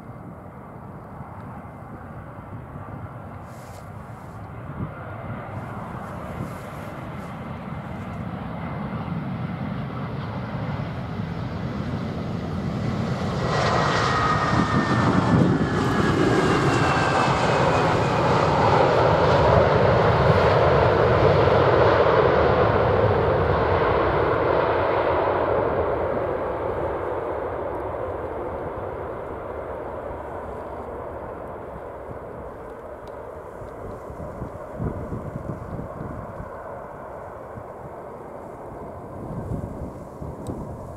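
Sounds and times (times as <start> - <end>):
aircraft engines passing: 0.0 - 40.9.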